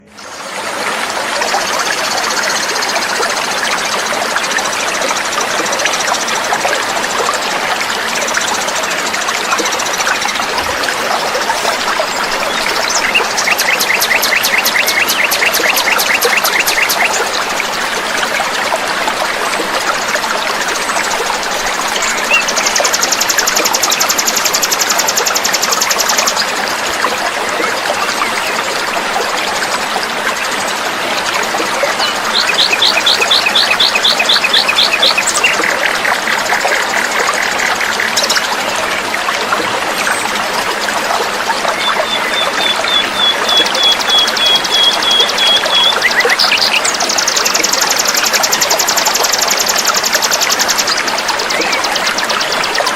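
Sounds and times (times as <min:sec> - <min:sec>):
trickling water: 0:00.0 - 0:52.9
songbirds trilling: 0:04.0 - 0:18.0, 0:20.0 - 0:26.5, 0:31.4 - 0:38.4, 0:41.7 - 0:52.9.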